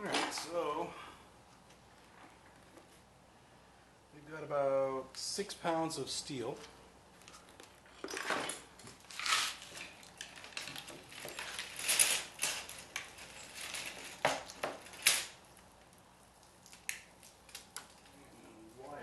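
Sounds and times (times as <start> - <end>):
scrap metal clinking and clattering: 7.9 - 15.4.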